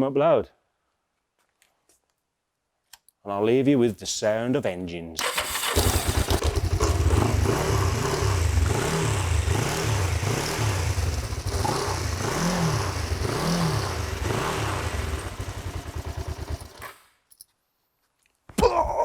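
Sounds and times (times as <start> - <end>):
motorcycle engine revving: 5.2 - 17.0.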